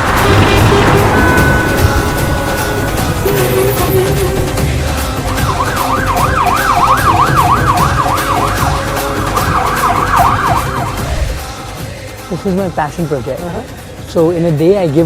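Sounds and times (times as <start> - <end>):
siren yelping: 5.2 - 11.1.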